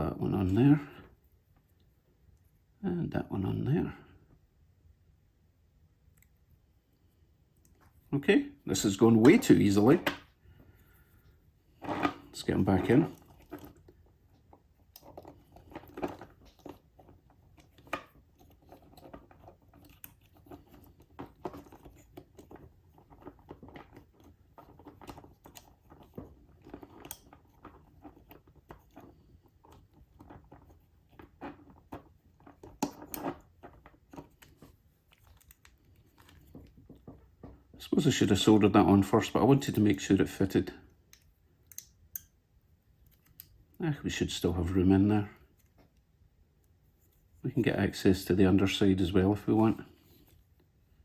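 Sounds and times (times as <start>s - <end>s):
small parts clicking and tapping: 13.1s - 37.7s, 41.0s - 42.4s, 43.0s - 43.8s.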